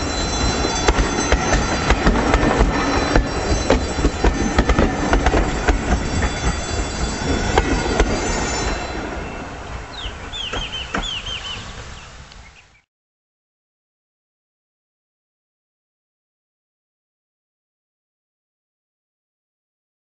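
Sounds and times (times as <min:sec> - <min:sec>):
train wheels clacking over joints: 0:00.0 - 0:09.1, 0:10.3 - 0:11.9
high ringing from wheels: 0:00.0 - 0:12.2
bird chirping: 0:07.3 - 0:12.9.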